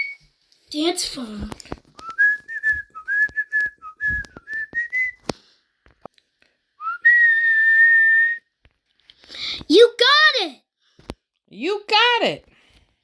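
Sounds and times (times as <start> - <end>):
person whistling: 0.0 - 0.2, 2.0 - 5.3, 6.8 - 8.5.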